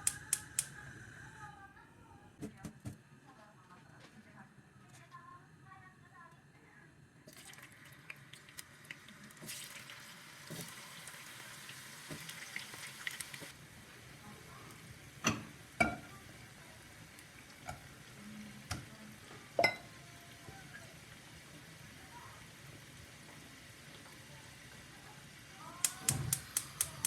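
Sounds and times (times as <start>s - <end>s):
food sizzling in a pan: 7.5s - 27.0s.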